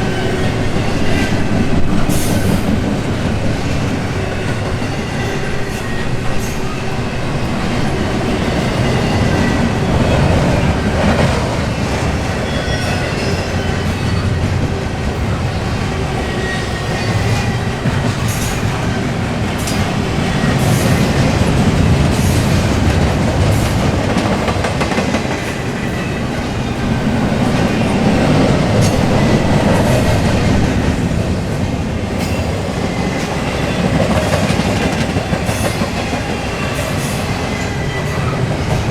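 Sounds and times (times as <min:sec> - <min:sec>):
train clicks: 0:00.0 - 0:38.9
train wheels rumbling on rails: 0:00.0 - 0:38.9
high wheel squeal: 0:35.5 - 0:38.9.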